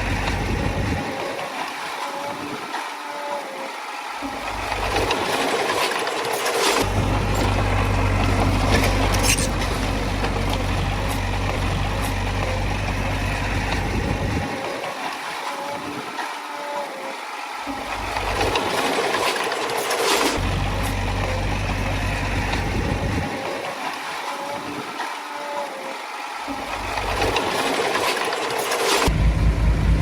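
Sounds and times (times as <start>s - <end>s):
heavy diesel machinery running: 0.0s - 1.5s, 4.2s - 15.0s, 17.7s - 23.8s, 26.5s - 30.0s
metal and rock clanking: 4.4s - 14.4s.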